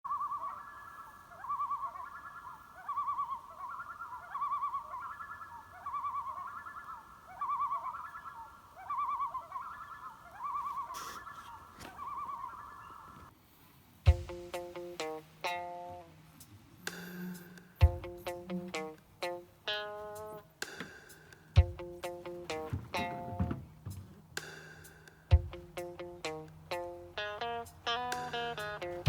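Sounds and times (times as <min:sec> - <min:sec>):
trilled animal calls: 0:00.1 - 0:13.4, 0:14.6 - 0:20.5, 0:21.6 - 0:24.4.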